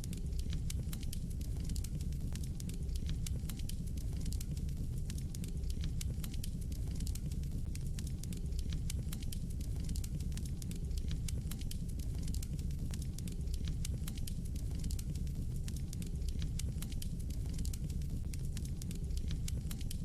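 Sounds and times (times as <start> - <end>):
burning logs crackling and popping: 0.0 - 20.0
fire flames rumbling: 0.1 - 20.0.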